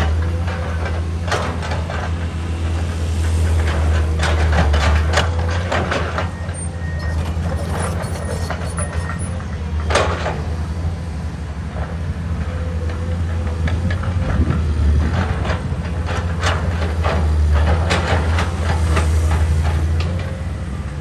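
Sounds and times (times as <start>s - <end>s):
excavator diesel engine droning: 0.0s - 21.0s
harsh machine noises: 5.9s - 9.9s, 17.8s - 20.6s.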